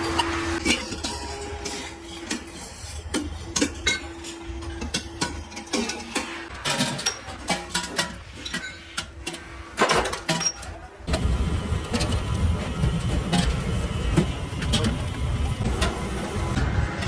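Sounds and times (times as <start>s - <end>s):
machine running with low rumble: 11.1s - 17.0s.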